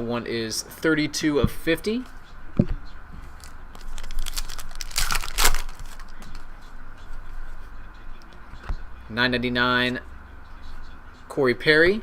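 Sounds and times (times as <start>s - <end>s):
plastic packaging crinkling: 3.3s - 6.5s.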